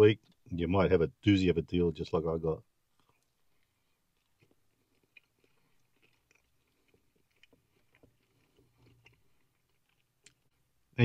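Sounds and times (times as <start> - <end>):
faint chewing crunches: 2.8 - 10.9.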